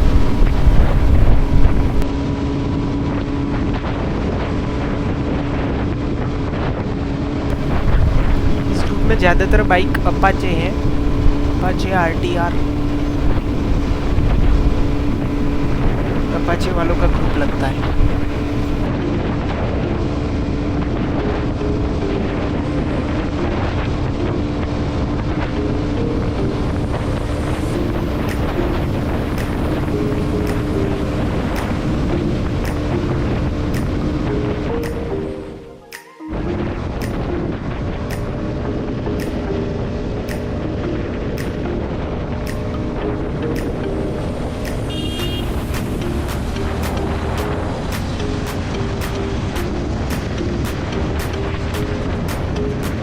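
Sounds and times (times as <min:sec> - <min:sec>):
motorcycle engine cruising: 0:00.0 - 0:02.1, 0:07.5 - 0:18.9
road noise: 0:00.0 - 0:03.4, 0:07.3 - 0:19.0, 0:19.8 - 0:53.0
wind buffeting microphone: 0:00.0 - 0:35.6.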